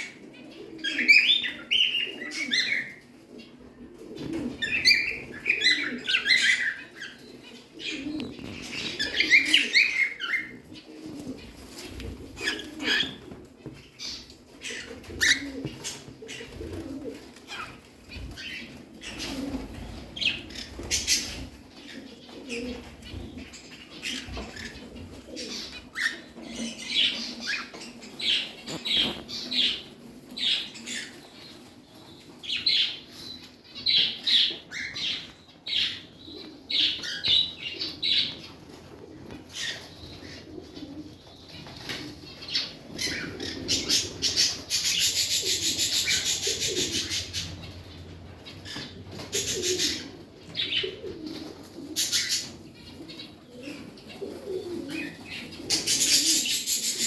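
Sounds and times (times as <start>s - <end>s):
low cooing murmur: 0.0s - 13.4s, 18.4s - 23.2s, 41.9s - 57.0s
pet birds chirping: 0.0s - 19.6s, 20.2s - 57.0s
wing flutters: 42.9s - 50.3s.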